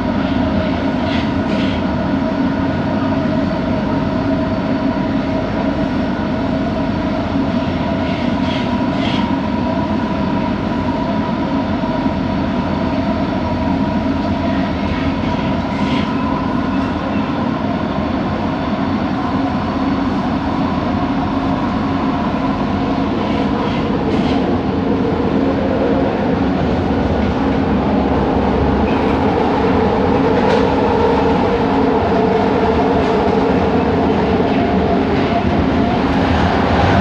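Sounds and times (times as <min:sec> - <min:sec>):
train wheels rumbling on track: 0:00.0 - 0:37.0
train motor hum: 0:14.1 - 0:37.0.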